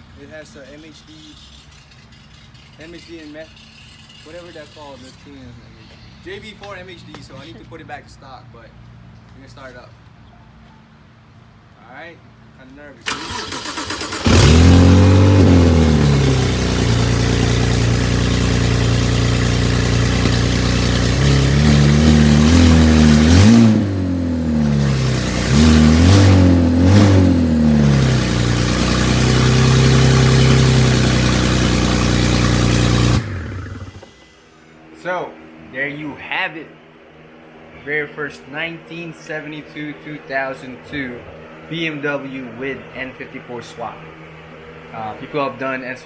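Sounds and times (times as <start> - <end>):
car engine starting and idling: 13.0 - 34.7
engine revving: 13.1 - 34.4.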